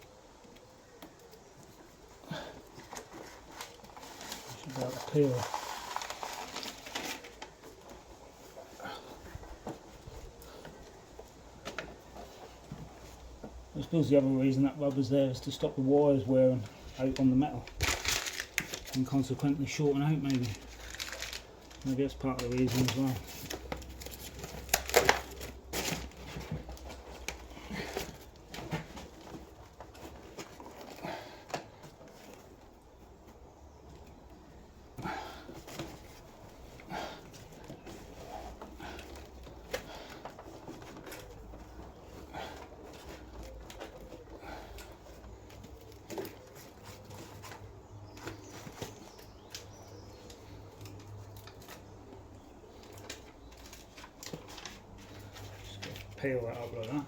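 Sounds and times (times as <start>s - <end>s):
adhesive sheet rustling and crinkling: 0.4s - 13.4s, 16.5s - 34.6s.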